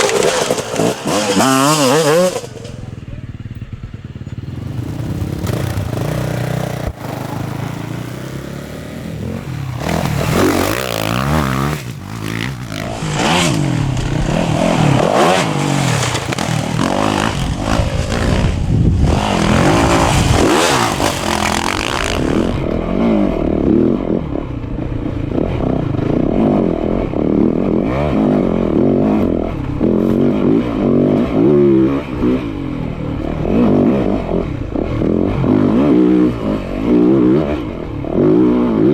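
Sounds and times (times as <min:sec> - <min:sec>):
loud hiss and clatter: 0:00.0 - 0:02.8, 0:09.8 - 0:22.6
dirt bike engines revving: 0:00.0 - 0:38.9.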